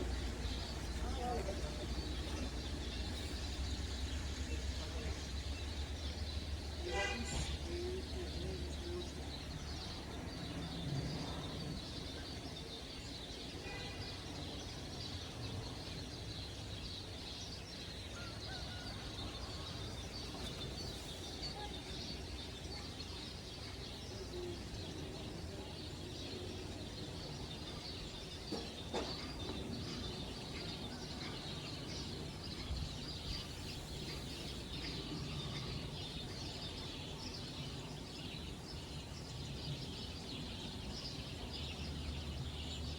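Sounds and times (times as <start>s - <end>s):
birds chirping and singing: 14.4s - 42.9s.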